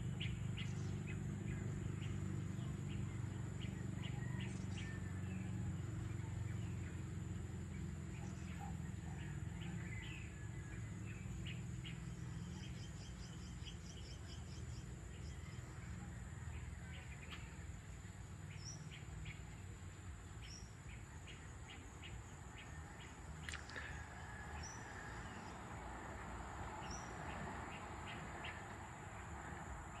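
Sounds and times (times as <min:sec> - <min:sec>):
low steady background rumble: 0:00.0 - 0:30.0.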